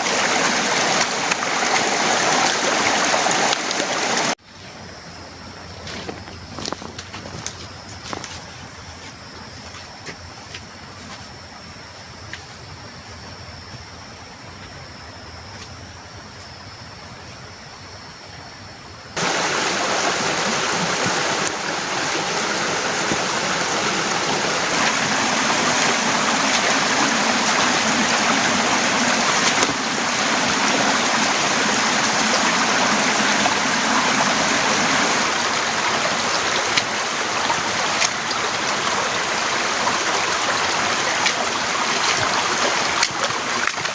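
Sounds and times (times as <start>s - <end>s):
torrential rain: 0.0s - 4.4s, 19.2s - 43.9s.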